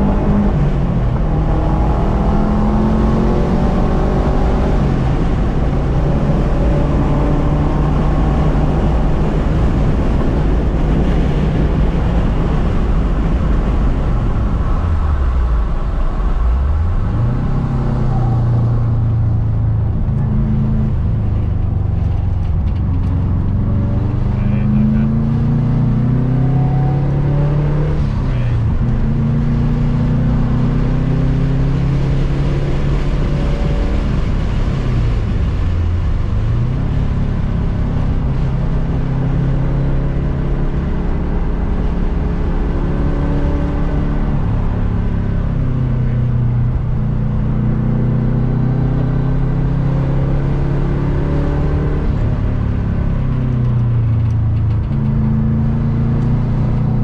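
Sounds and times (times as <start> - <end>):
car engine revving: 0.0 - 57.0
wind and road noise: 0.0 - 57.0.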